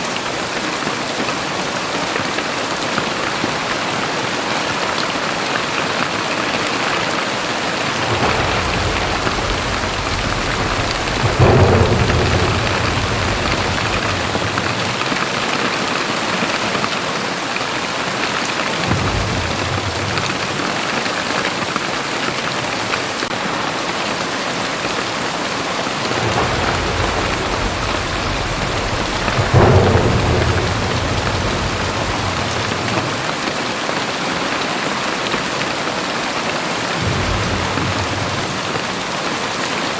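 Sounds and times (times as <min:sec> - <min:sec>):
heavy rain pouring: 0:00.0 - 0:39.9
thunder rumbling: 0:05.2 - 0:16.9, 0:17.9 - 0:34.1, 0:36.8 - 0:39.9.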